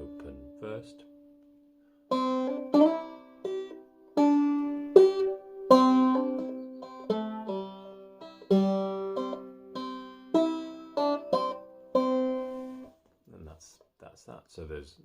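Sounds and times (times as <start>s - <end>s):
banjo plucking: 0.0s - 1.2s, 2.1s - 13.0s.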